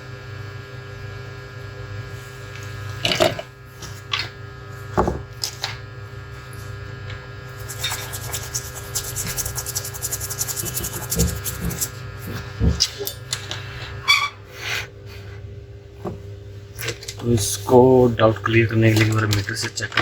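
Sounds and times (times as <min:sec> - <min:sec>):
electrical hum: 0:00.0 - 0:20.0
scrubbing on circuit board: 0:07.5 - 0:12.4.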